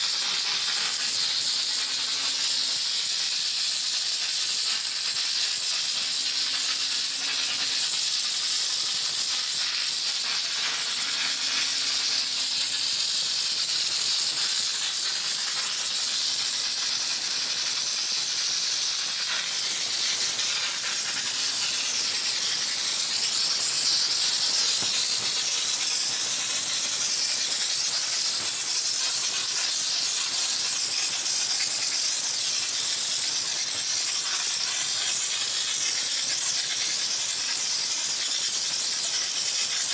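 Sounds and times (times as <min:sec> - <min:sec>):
steam jet hissing: 0:00.0 - 0:39.9.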